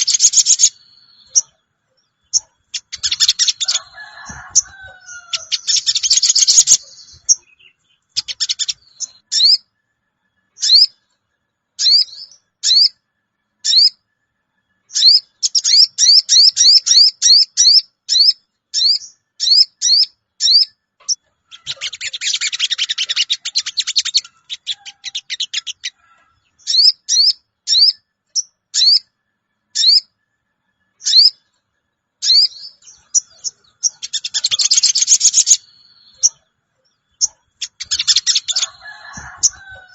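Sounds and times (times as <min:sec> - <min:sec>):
harsh bird chattering: 0:00.0 - 0:00.7, 0:02.3 - 0:09.6, 0:15.0 - 0:26.0, 0:32.2 - 0:35.6, 0:37.1 - 0:39.9.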